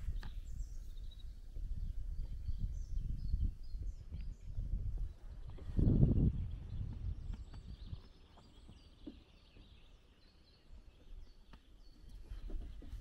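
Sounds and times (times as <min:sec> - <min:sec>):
low rumble on microphone: 0:00.0 - 0:09.9
faint songbirds chirping: 0:00.0 - 0:13.0.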